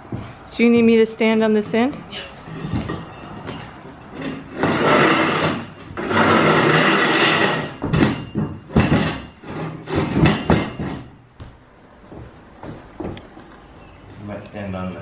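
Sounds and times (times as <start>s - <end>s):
metal knocks and clanks: 0.1s - 11.5s
rebar scraping in bender: 2.4s - 11.1s.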